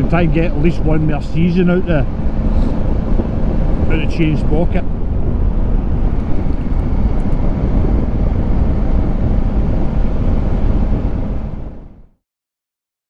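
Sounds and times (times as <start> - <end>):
wind rush over microphone: 0.0 - 12.2
motorcycle engine running: 4.8 - 12.0.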